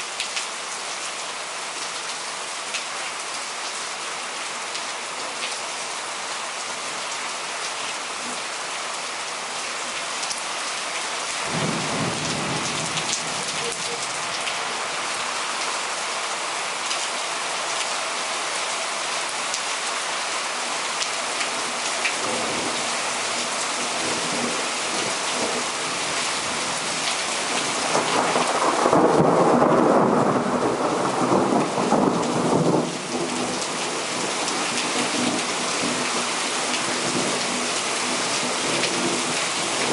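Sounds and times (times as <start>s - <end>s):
heavy rain pouring: 0.0s - 39.9s
thunder rumbling: 11.5s - 14.4s, 27.8s - 33.5s.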